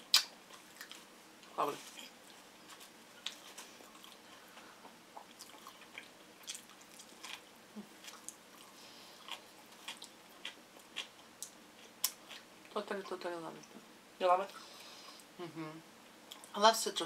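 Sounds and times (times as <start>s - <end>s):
wet mouth smacks: 0.1s - 0.9s
soft chewing: 0.1s - 13.8s.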